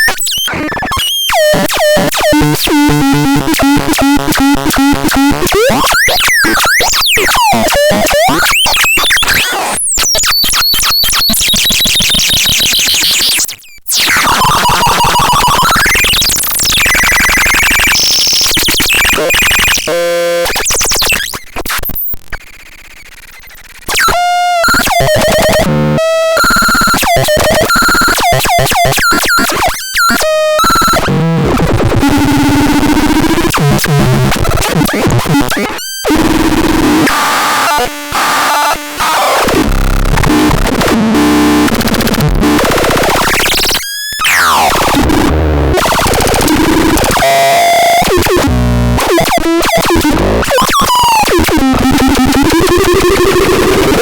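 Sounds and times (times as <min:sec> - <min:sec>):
harsh synthesizer tones: 0:00.0 - 0:09.8, 0:23.9 - 0:54.0.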